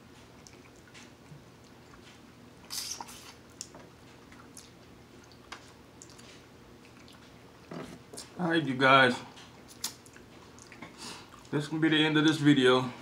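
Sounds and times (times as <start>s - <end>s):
people chewing: 0.1s - 8.3s, 9.2s - 11.6s
wet mouth smacks: 2.7s - 3.7s, 9.7s - 10.9s.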